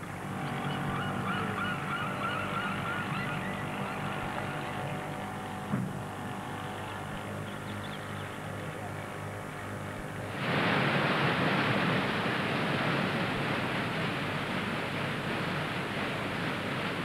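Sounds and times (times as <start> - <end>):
low steady hum: 0.0 - 17.0
birds calling: 0.3 - 8.9.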